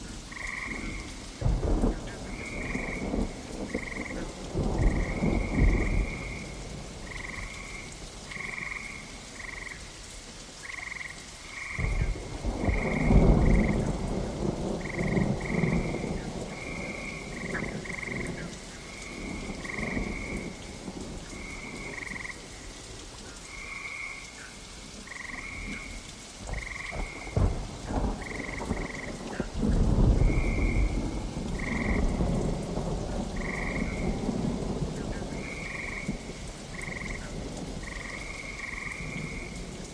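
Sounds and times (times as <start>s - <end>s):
thunder rumbling: 0.0s - 9.0s, 11.6s - 22.6s, 25.0s - 39.9s
frogs croaking: 0.0s - 39.9s
steady rain: 0.0s - 39.9s.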